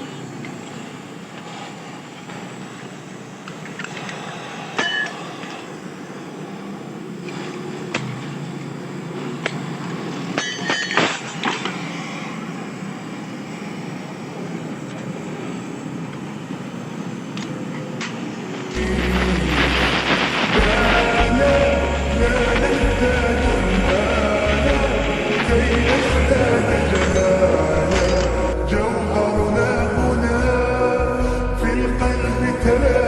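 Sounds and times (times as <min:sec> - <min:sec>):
steady background rumble: 0:11.1 - 0:33.0.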